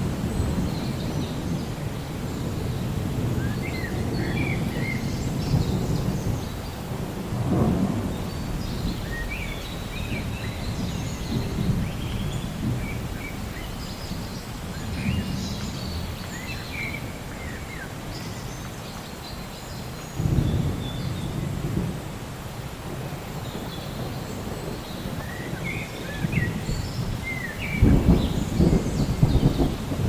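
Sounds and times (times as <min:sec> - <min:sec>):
thunder rumbling: 0:00.0 - 0:17.5, 0:20.2 - 0:30.0
steady rain: 0:00.0 - 0:30.0
birds chirping: 0:23.4 - 0:30.0.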